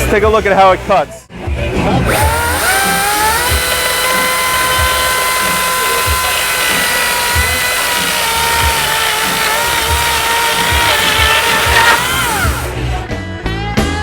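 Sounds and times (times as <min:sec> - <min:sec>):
chainsaw whining: 0:02.1 - 0:13.0.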